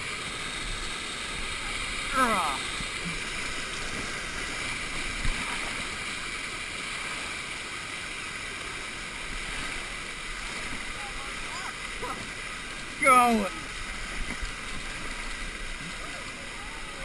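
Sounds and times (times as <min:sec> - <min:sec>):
churning water rushing: 0:00.0 - 0:17.0.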